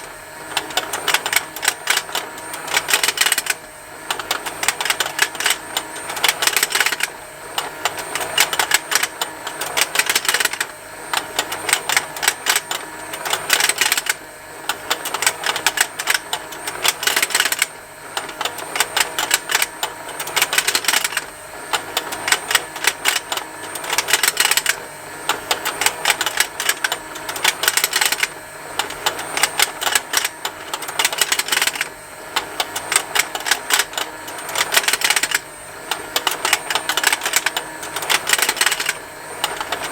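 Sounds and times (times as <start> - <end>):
toy motor and gears ticking: 0.0 - 39.9.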